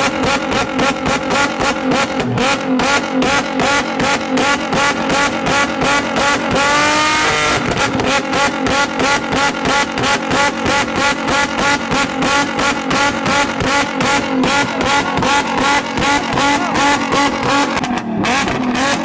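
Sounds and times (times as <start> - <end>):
car engine on rev limiter: 0.0 - 19.0.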